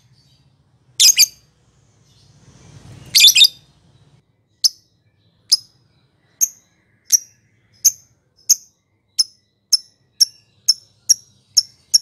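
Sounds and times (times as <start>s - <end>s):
lovebird chirping: 0.0s - 12.0s.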